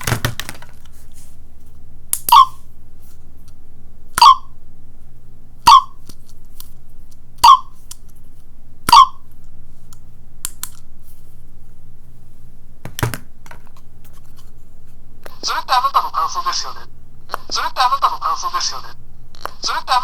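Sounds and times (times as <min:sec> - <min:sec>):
sound button toy bursts: 0:08.9 - 0:09.2.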